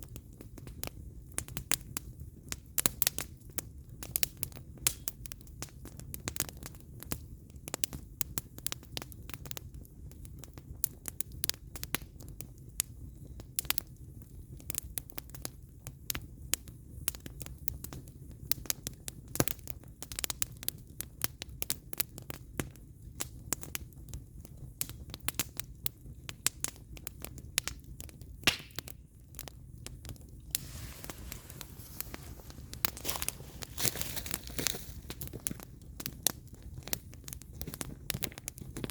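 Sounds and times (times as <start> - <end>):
fire crackling and popping: 0.0 - 38.9
low rumble of flames: 0.0 - 38.9
soft hiss: 30.3 - 35.1.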